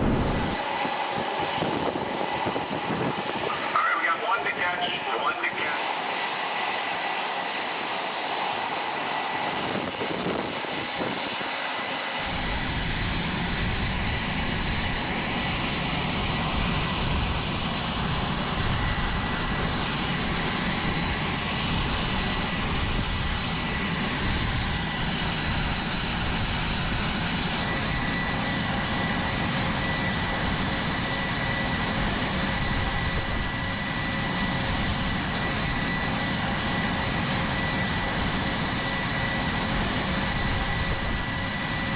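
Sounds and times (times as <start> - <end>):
deep rumble: 0.0 - 0.6
jet engines roaring: 0.0 - 41.9.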